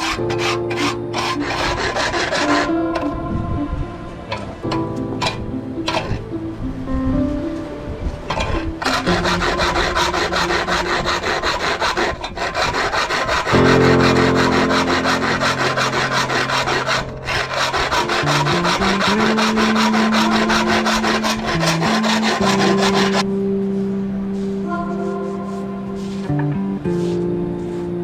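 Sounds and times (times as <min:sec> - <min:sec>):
hand tool rasping strokes: 0:00.0 - 0:03.1, 0:05.2 - 0:06.1, 0:08.3 - 0:23.2
background music: 0:00.0 - 0:28.0.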